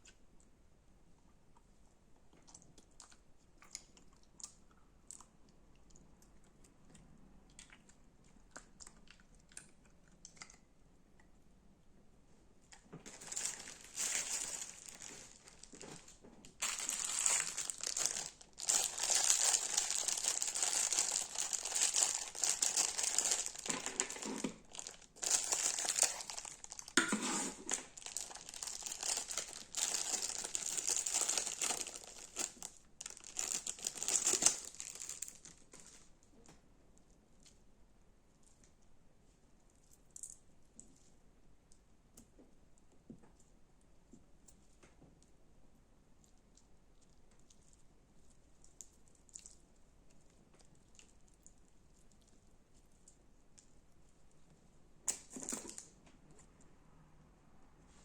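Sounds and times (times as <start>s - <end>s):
slime crackling and popping: 13.1s - 36.0s.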